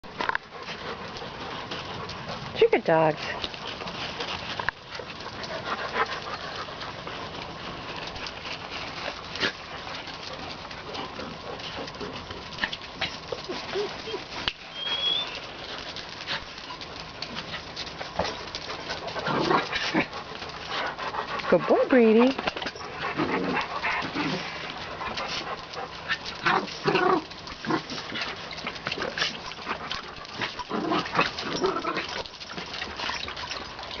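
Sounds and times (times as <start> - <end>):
dogs scuffling while playing: 0.0 - 34.0.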